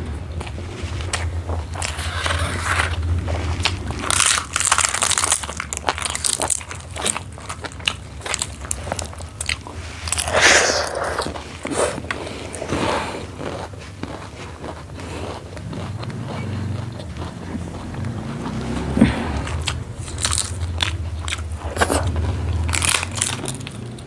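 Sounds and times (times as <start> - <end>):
person chewing crunchy food: 0.4 - 24.0
mouth clicks: 10.0 - 13.2.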